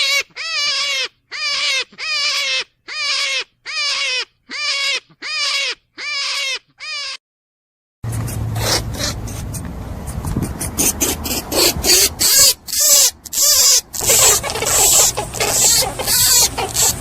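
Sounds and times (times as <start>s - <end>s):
rabbit squealing: 0.0s - 7.2s, 8.1s - 17.0s
rasping rubbing noise: 8.0s - 17.0s.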